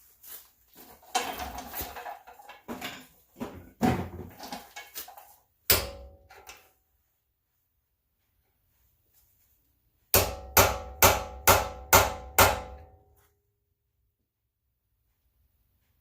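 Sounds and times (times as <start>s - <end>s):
metal tools clattering: 0.9s - 3.3s.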